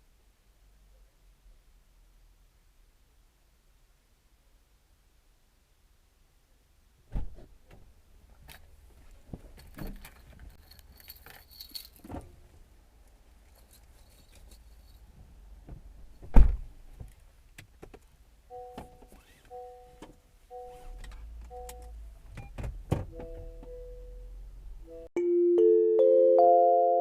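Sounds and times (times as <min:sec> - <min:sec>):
keys jangling: 0:09.5 - 0:12.2, 0:13.4 - 0:15.1.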